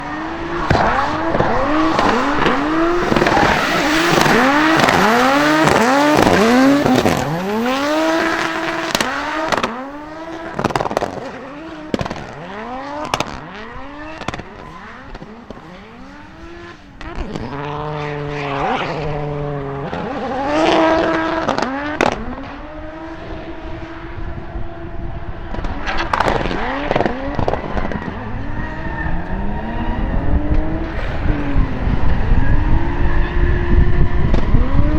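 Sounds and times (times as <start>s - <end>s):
tyre squeal: 0.0s - 10.2s, 25.8s - 34.9s
car engines revving hard: 0.0s - 34.9s.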